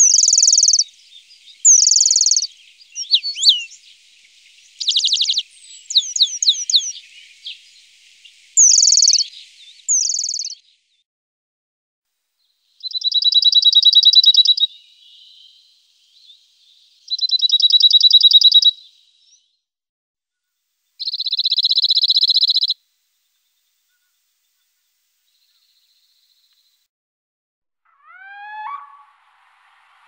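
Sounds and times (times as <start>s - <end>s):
bird high rapid trills: 0.0s - 10.5s.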